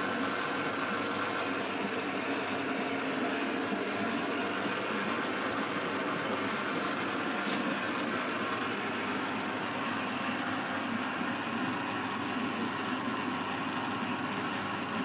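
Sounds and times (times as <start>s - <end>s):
washing machine running: 0.0s - 15.0s
faint brief hisses: 6.7s - 7.8s.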